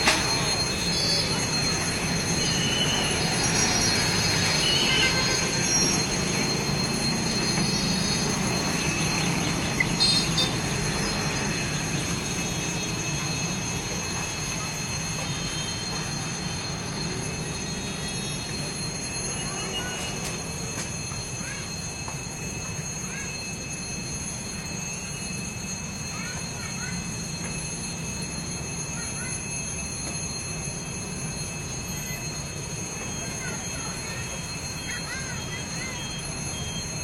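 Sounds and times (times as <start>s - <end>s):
high thin wheel squeal: 0.0s - 37.0s
train rumbling on rails: 0.0s - 37.0s.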